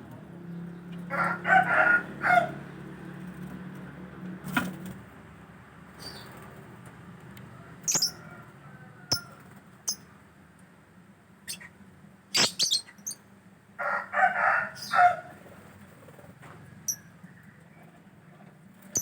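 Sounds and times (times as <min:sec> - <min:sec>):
short high bird chirps: 0:07.9 - 0:08.2, 0:11.5 - 0:11.7, 0:12.4 - 0:13.2
chicken-like clucking call: 0:13.8 - 0:15.4.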